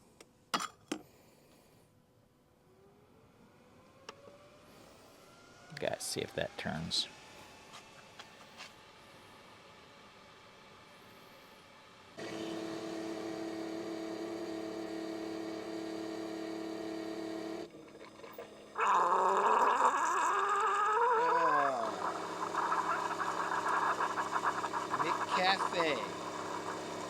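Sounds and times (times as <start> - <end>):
coffee maker hissing and gurgling: 10.9 - 27.0
coffee maker electric hum: 12.1 - 27.0.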